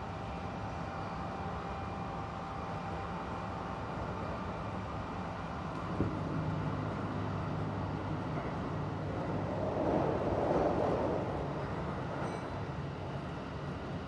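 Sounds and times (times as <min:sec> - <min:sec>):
train running gear rumbling: 0:04.7 - 0:14.0.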